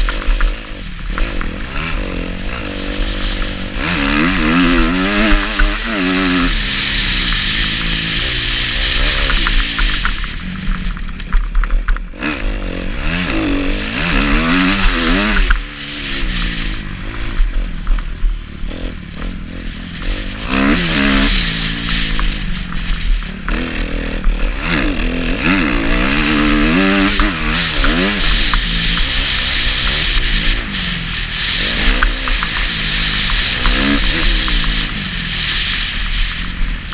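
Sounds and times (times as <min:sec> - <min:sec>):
motorcycle engine revving hard: 0:00.0 - 0:36.9
steady rushing hiss: 0:00.0 - 0:36.9.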